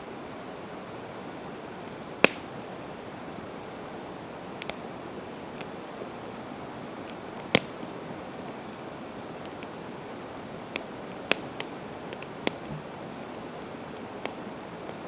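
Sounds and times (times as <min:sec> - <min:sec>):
campfire crackling: 0:00.1 - 0:15.0
fire hiss: 0:00.1 - 0:15.0
loud sharp pops: 0:02.2 - 0:02.5, 0:07.3 - 0:07.9.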